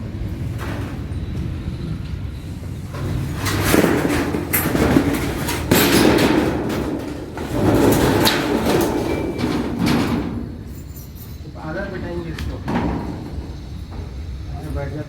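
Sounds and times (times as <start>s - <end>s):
tin sheets rattling: 3.0s - 13.9s.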